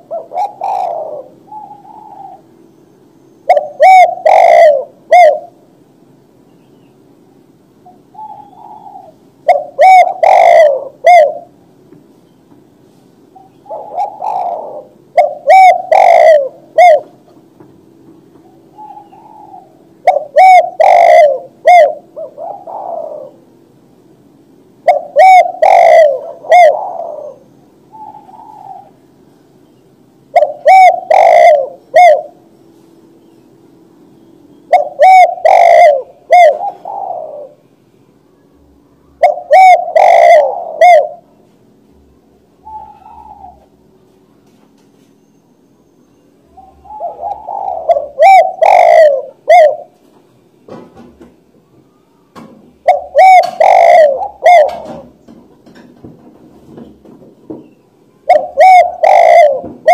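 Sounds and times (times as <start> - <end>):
dove cooing: 0.0 - 5.7, 7.8 - 11.6, 13.4 - 17.5, 18.4 - 23.6, 24.8 - 29.2, 30.3 - 32.6, 34.7 - 37.6, 39.1 - 41.4, 42.6 - 44.2, 46.4 - 50.1, 52.8 - 55.8, 58.0 - 59.9.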